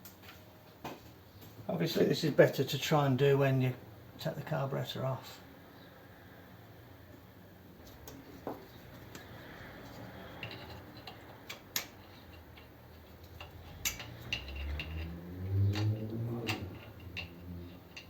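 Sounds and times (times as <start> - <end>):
metal tools clicking and tapping: 7.8 - 18.0.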